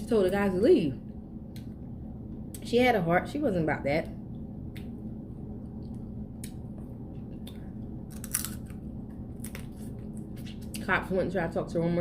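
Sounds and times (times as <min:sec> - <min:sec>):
chewing and biting: 0:06.4 - 0:08.8.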